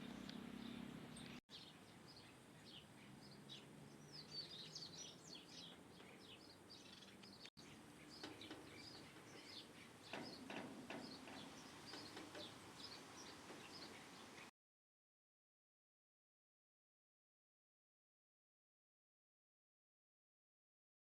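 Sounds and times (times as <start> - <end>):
small birds chirping: 0.0 - 14.5.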